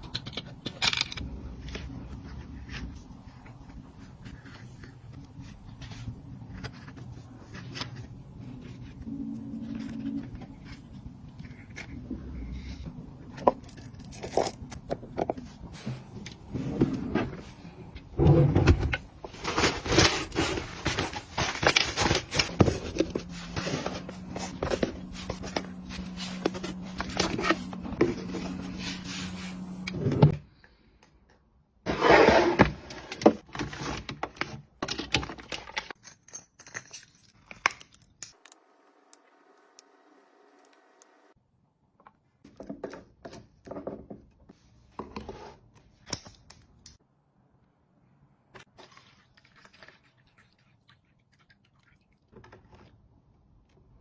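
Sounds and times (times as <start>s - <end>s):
objects clicking and rattling: 33.5s - 38.5s.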